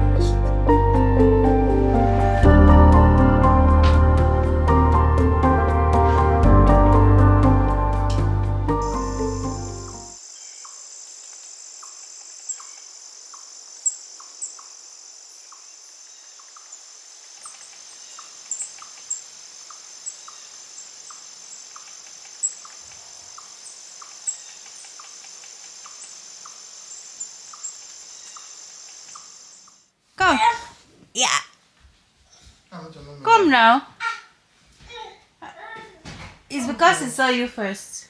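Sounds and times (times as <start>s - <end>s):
background music: 0.0s - 10.2s
high-pitched chirring: 8.7s - 10.2s
soft regular ticks: 21.0s - 26.6s, 27.2s - 29.8s.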